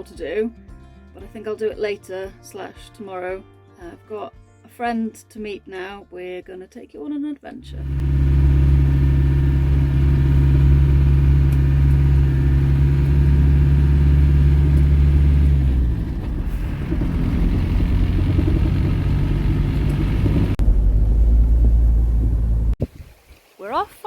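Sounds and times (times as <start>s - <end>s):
vehicle engine and road noise: 7.6s - 22.8s.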